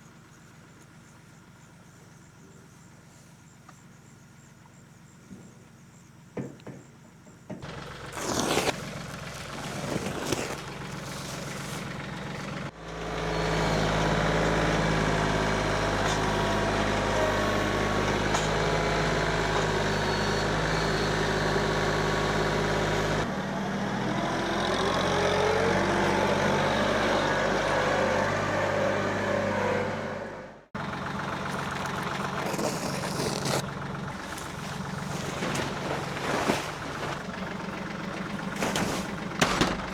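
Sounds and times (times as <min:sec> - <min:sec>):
knocks: 0:06.4 - 0:07.7, 0:38.7 - 0:39.9
tractor engine running: 0:06.9 - 0:39.9
rustling: 0:07.9 - 0:12.7, 0:30.9 - 0:39.9.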